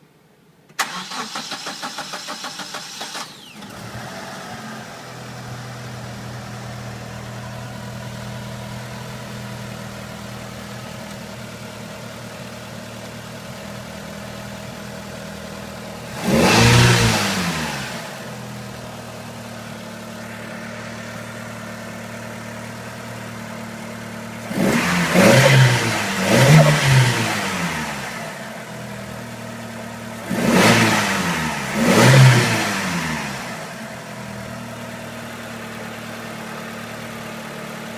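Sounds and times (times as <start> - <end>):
car engine starting and idling: 0.6 - 37.9
engine revving: 0.8 - 8.1, 16.0 - 18.3, 24.4 - 28.4, 30.2 - 33.8.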